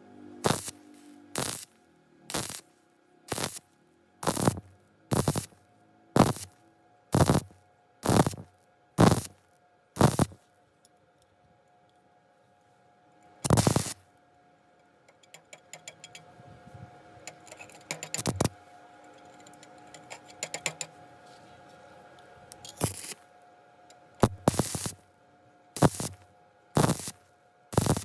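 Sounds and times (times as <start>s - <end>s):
faint steady hum: 0.0s - 28.0s
welding arc crackling: 0.4s - 0.8s, 1.4s - 1.7s, 2.3s - 2.6s, 3.3s - 3.6s, 4.2s - 5.6s, 6.2s - 6.5s, 7.1s - 9.4s, 10.0s - 10.4s, 13.4s - 14.0s, 18.1s - 18.5s, 22.7s - 23.2s, 24.2s - 25.0s, 25.8s - 26.2s, 26.8s - 27.2s, 27.8s - 28.0s.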